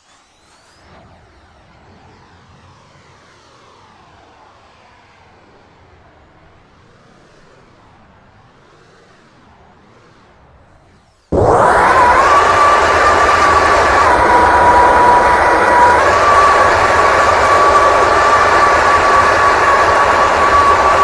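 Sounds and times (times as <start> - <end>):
model jet whine: 0.0 - 21.0
strong wind rumble: 11.4 - 21.0.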